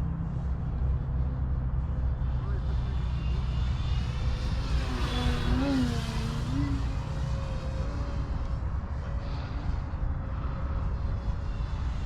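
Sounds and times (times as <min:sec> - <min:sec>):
electric model plane motor whining: 0:04.0 - 0:08.5.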